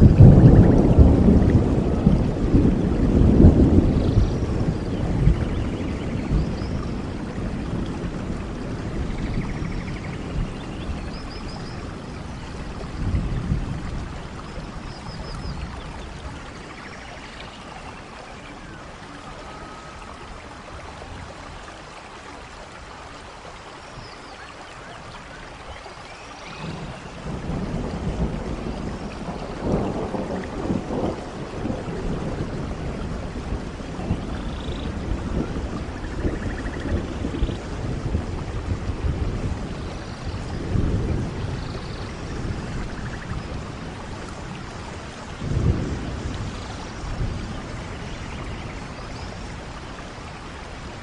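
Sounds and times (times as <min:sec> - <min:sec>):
thunder rumbling: 0:00.0 - 0:16.9, 0:26.6 - 0:51.0
steady rainfall: 0:00.0 - 0:51.0.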